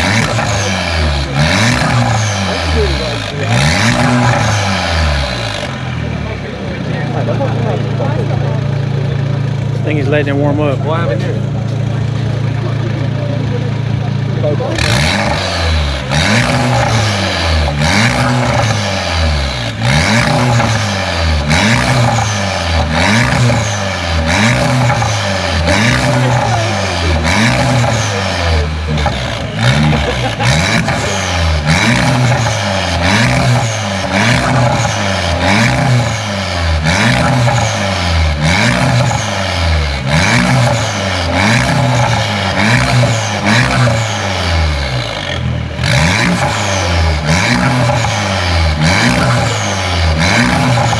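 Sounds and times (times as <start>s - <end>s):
car engine revving: 0.0s - 50.9s.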